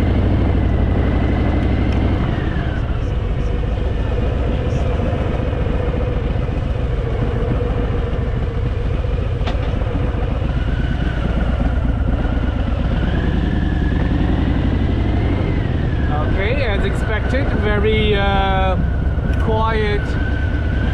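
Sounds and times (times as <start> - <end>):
motorcycle engine running: 0.0 - 20.9
road and wind noise: 0.0 - 20.9.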